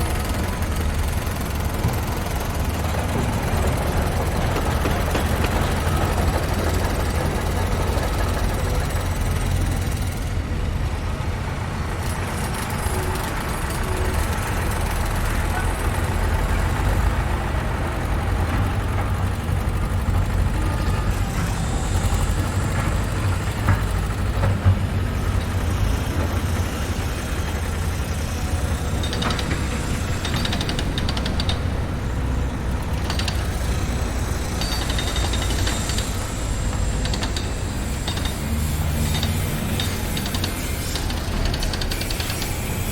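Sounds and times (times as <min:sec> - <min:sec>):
construction machinery rumble: 0:00.0 - 0:42.9
rapid metallic ticking: 0:12.4 - 0:42.9.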